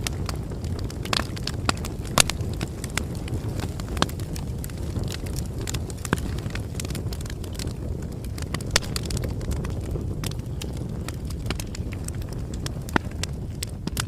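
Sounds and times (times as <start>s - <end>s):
bonfire crackling: 0.0s - 14.0s.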